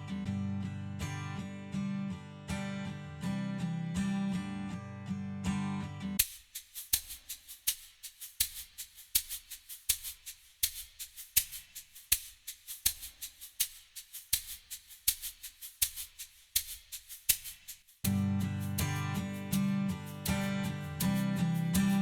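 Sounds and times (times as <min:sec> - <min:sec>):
shaker rhythm: 0:06.2 - 0:22.0.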